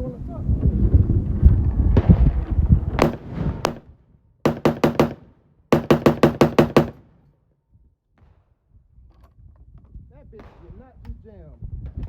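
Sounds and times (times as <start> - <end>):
rifle gunshots: 3.0 - 3.8, 4.5 - 7.1.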